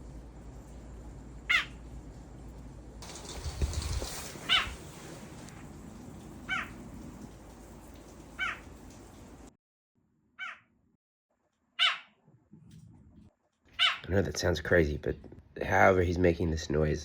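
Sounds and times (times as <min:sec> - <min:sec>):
small animal high calls: 0:01.5 - 0:01.8, 0:04.4 - 0:04.8, 0:06.5 - 0:06.7, 0:08.4 - 0:08.7, 0:10.4 - 0:10.6, 0:11.8 - 0:12.1, 0:13.8 - 0:14.0.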